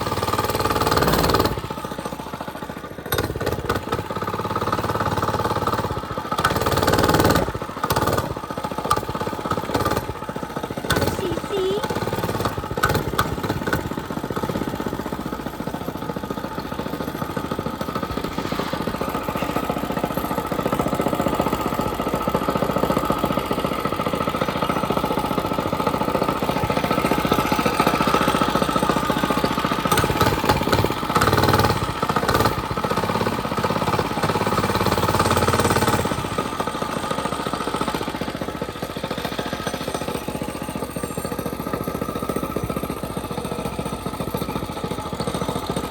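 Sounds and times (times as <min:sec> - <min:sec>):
small gasoline engine running: 0:00.0 - 0:45.9.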